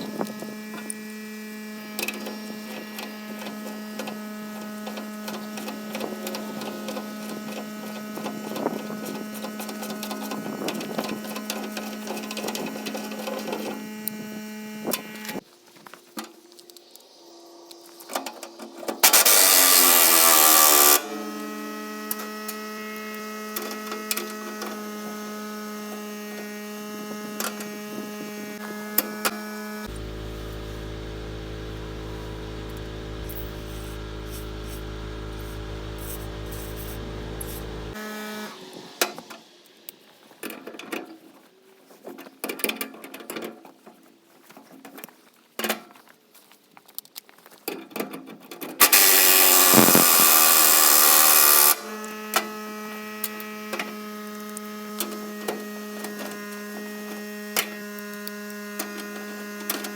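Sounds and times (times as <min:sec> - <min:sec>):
impact gun whirring: 0:19.0 - 0:26.4, 0:27.2 - 0:39.3, 0:48.8 - 0:54.0.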